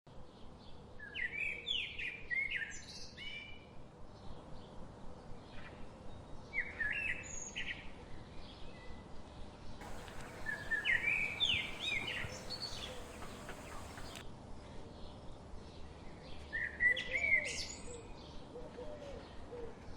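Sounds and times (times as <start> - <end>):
background hiss: 9.8 - 14.2
songbird singing: 9.8 - 14.2.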